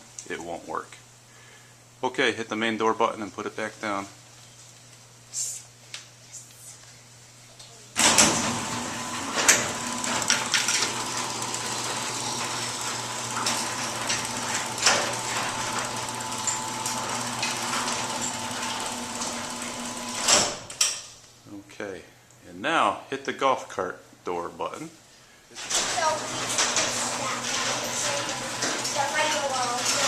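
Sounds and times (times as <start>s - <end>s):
garage door opener motor hum: 8.0s - 21.1s, 25.5s - 30.0s
garage door clunk: 8.0s - 21.2s, 25.6s - 30.0s.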